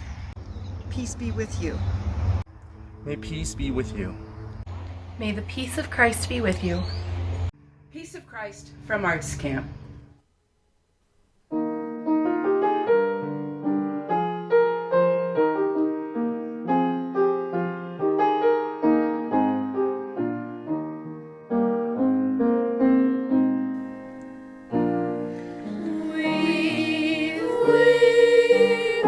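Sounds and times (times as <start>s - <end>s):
solo piano playing: 11.5s - 29.0s
person singing: 25.6s - 29.0s.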